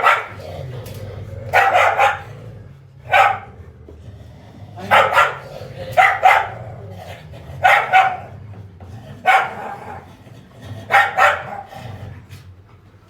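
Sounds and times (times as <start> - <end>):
dog barking: 0.0 - 0.4, 1.5 - 2.4, 3.1 - 3.6, 4.8 - 6.8, 7.6 - 8.4, 9.2 - 10.0, 10.9 - 11.7
steady low hum: 0.0 - 13.0.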